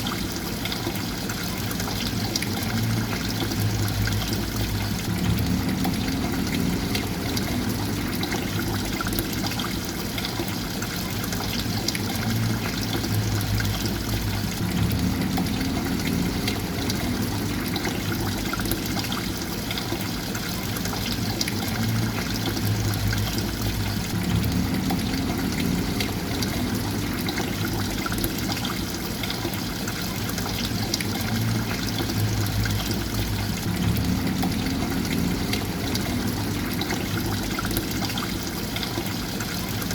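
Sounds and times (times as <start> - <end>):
water trickling and pouring: 0.0 - 39.9
low hum: 2.6 - 9.4, 12.3 - 19.4, 21.6 - 28.7, 31.1 - 38.1.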